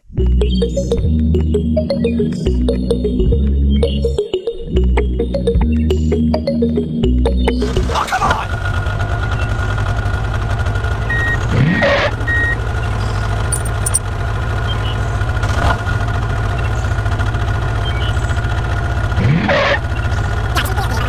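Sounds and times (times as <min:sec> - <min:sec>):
heavy truck engine running: 0:00.0 - 0:21.0
reversing beeps: 0:11.1 - 0:12.6.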